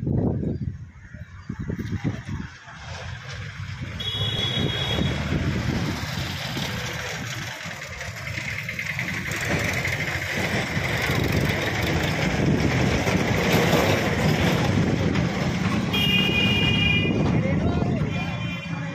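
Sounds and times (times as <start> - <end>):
electric train rumble: 4.0 - 18.0.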